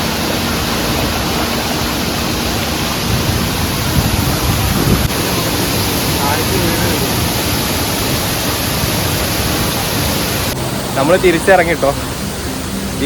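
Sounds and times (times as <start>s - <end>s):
waterfall pouring onto rock: 1.6s - 13.0s.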